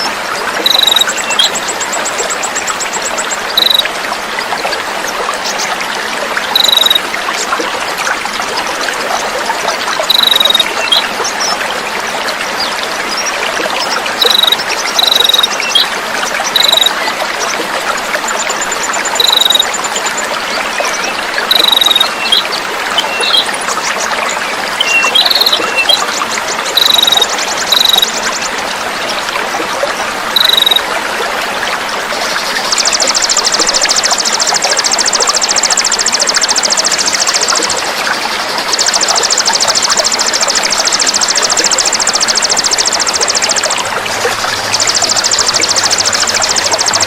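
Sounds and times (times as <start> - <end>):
songbirds chirping and trilling: 0.0 - 7.2, 8.3 - 29.3, 30.3 - 30.9
water trickling: 0.0 - 47.0.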